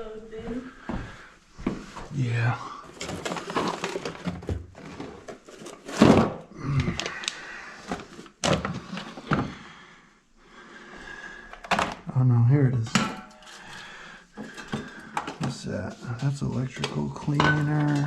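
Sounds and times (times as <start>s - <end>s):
items knocking in storage bin: 2.9s - 6.4s.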